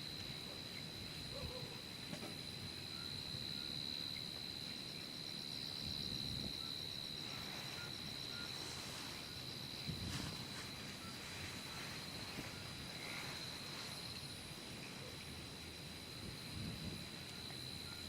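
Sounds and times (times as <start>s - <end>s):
high insect drone: 0.0s - 18.0s
faint pulsing chirp: 6.6s - 15.4s, 17.2s - 18.0s.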